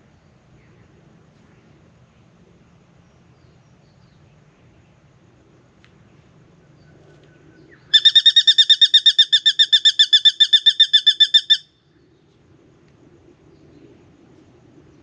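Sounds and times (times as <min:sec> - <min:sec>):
bird ringing call notes: 0:07.9 - 0:11.8.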